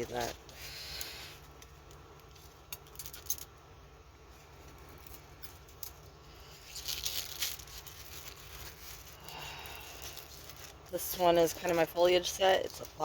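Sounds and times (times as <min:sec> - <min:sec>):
plastic crackling: 0:04.5 - 0:13.0
plastic packaging crinkling: 0:04.5 - 0:13.0.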